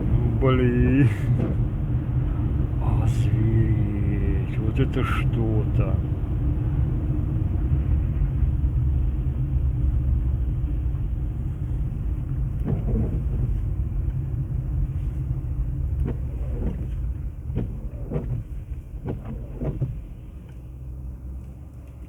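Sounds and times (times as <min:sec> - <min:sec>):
car driving on snowy road: 0:00.0 - 0:22.0
short knocks: 0:12.6 - 0:13.6, 0:16.0 - 0:20.1.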